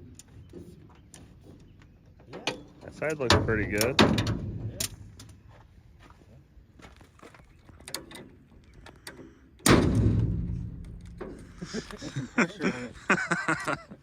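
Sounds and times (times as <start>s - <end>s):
heavy ringing slam: 9.6s - 11.5s.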